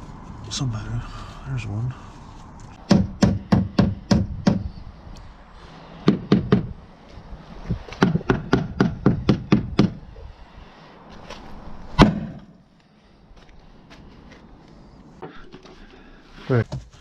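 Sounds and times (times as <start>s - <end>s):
sharp knocking strikes: 2.9s - 4.6s, 6.1s - 6.7s, 8.0s - 10.0s, 12.0s - 12.5s.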